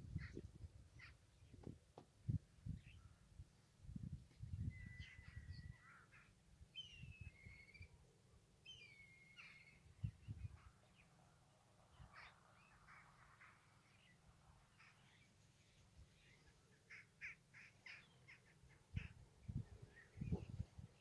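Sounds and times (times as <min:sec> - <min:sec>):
birds calling: 0:08.7 - 0:11.1, 0:12.0 - 0:21.0.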